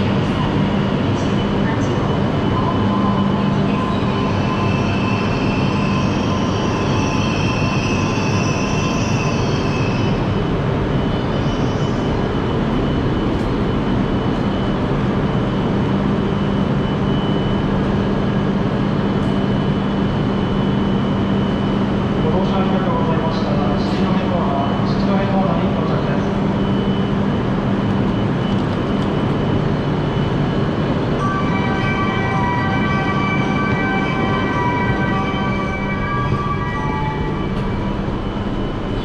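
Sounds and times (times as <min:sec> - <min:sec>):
train interior rumble: 0:27.3 - 0:39.0.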